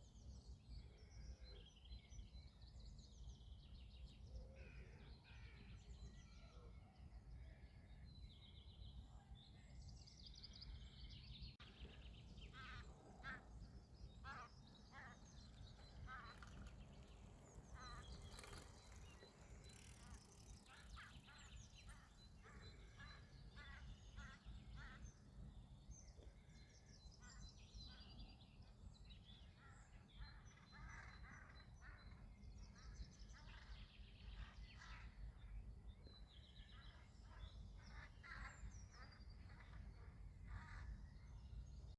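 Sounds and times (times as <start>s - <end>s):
bird chirps and trills: 11.6s - 25.2s.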